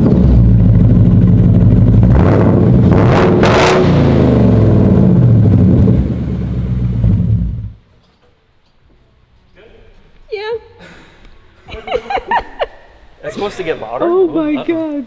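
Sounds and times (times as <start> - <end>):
car engine idling loudly: 0.0 - 2.9
engine revving: 0.0 - 7.8.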